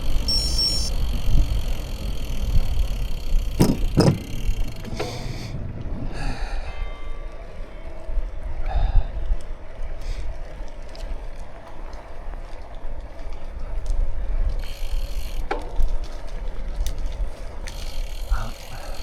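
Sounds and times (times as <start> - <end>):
bike clicks and rattles: 0.0 - 6.0, 10.0 - 19.0
bicycle tyre noise: 0.0 - 6.7, 9.3 - 19.0
wind rumble on microphone: 0.0 - 14.6.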